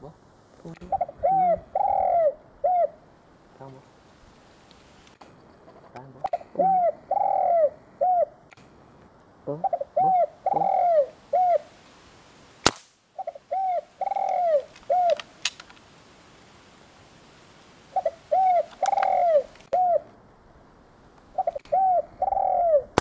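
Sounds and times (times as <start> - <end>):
dove cooing: 0.7 - 3.9, 5.7 - 8.4, 9.5 - 11.8, 13.2 - 15.3, 17.9 - 20.2, 21.3 - 23.0
sharp click: 8.5 - 8.7.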